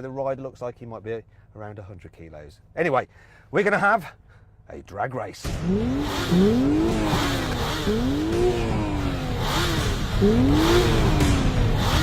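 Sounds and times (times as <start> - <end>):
engine revving: 5.4 - 12.0.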